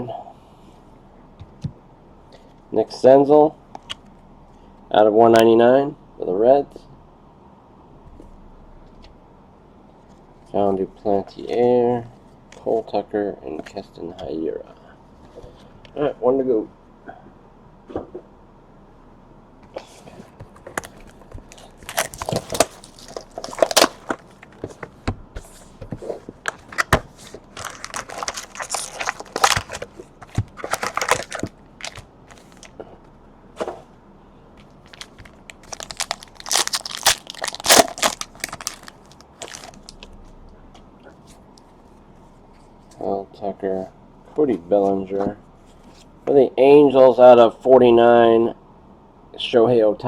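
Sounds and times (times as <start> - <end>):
foil packaging torn and crinkled: 20.8 - 24.6, 26.4 - 32.7, 34.9 - 40.1.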